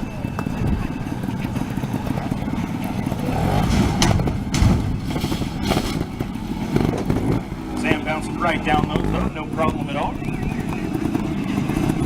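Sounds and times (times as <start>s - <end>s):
motorcycle engine at low revs: 0.0s - 12.0s
tire thudding on steps: 2.9s - 8.9s.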